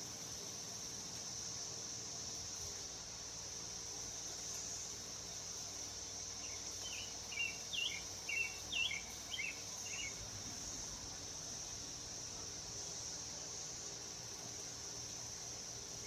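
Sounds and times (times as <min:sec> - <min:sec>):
bird chirping: 0:06.4 - 0:10.2.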